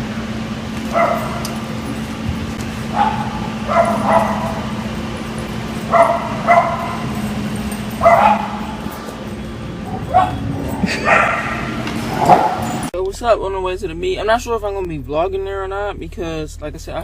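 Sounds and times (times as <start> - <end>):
steady low hum: 0.0 - 17.0
dog barking and yipping: 0.9 - 1.8, 2.7 - 12.9.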